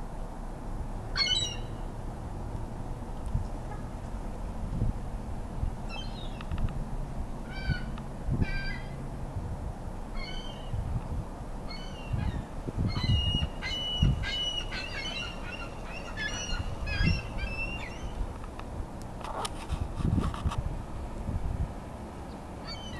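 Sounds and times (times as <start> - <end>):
gull calls: 1.2 - 1.7, 7.5 - 9.0, 10.2 - 10.7, 11.7 - 18.2, 22.6 - 22.9.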